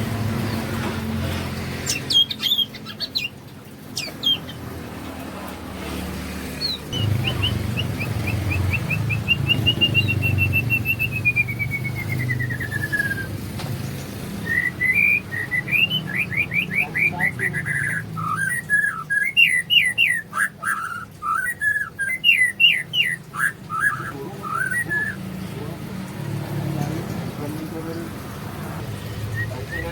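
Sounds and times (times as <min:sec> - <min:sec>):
songbird singing: 0:00.0 - 0:29.9.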